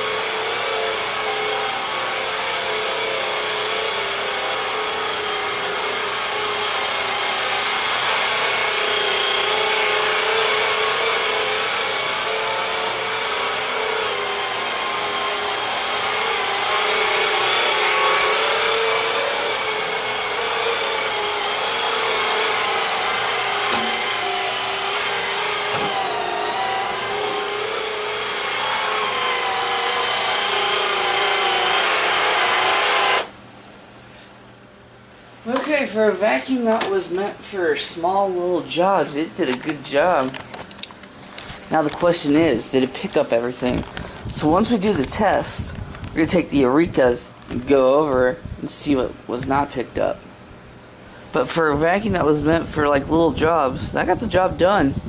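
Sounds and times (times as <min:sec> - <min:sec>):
vacuum cleaner motor whine: 0:00.0 - 0:33.4.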